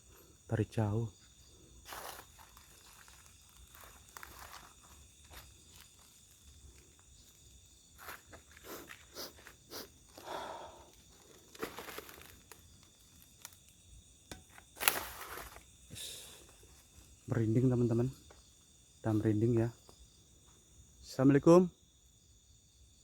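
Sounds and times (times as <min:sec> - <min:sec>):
footsteps crunching through undergrowth: 0:01.8 - 0:10.2, 0:10.9 - 0:13.7, 0:14.6 - 0:15.8.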